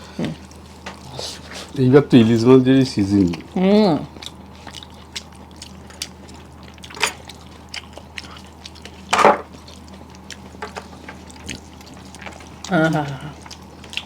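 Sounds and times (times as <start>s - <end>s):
wet eating clicks and squishes: 3.1s - 14.0s.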